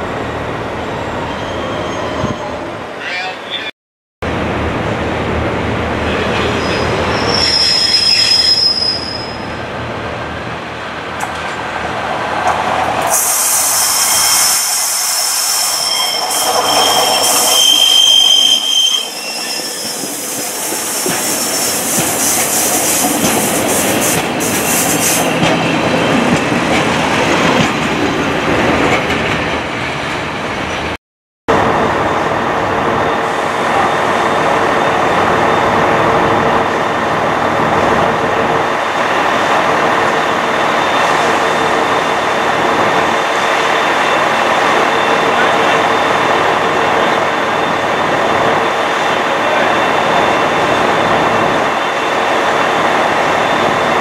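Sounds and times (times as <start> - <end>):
train wheels squealing: 0.9 - 2.6, 6.4 - 9.6, 13.1 - 23.1
train running noise: 4.3 - 54.0.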